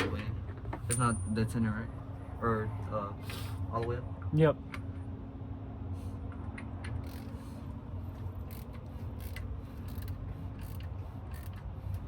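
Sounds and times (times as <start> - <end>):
ratchet wrench clicking: 6.3 - 7.4, 8.4 - 12.0.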